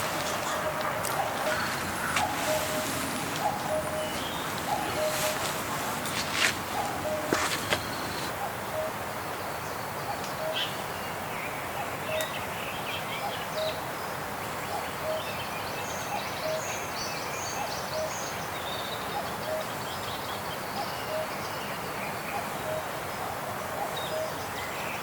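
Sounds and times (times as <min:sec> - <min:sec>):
birds chirping: 0:00.0 - 0:08.3
wind in trees: 0:00.0 - 0:25.0.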